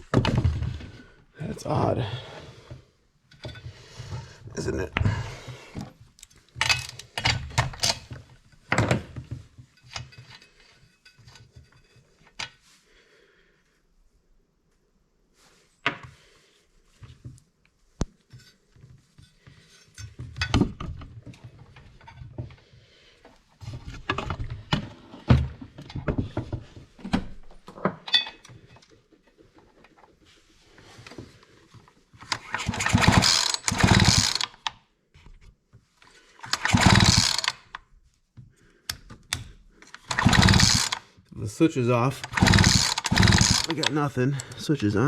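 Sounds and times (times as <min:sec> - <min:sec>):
chainsaw being handled: 0:32.2 - 0:34.7, 0:36.4 - 0:37.8, 0:39.8 - 0:41.1, 0:42.2 - 0:44.6
chainsaw recoil starter pulls: 0:32.2 - 0:34.7, 0:36.4 - 0:37.8, 0:39.9 - 0:41.1, 0:42.0 - 0:44.7.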